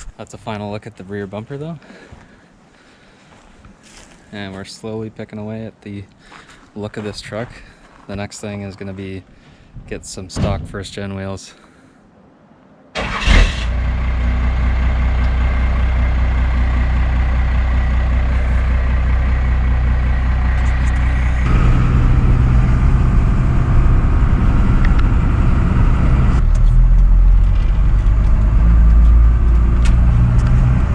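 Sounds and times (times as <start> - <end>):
diesel engine running: 13.0 - 30.9.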